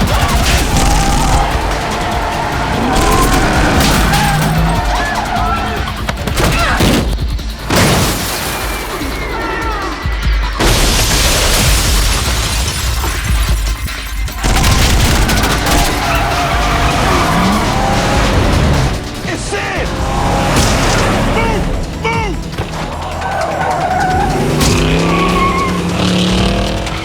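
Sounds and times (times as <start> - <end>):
action film music: 0.0 - 27.0
booms and crashing impacts: 10.6 - 19.2.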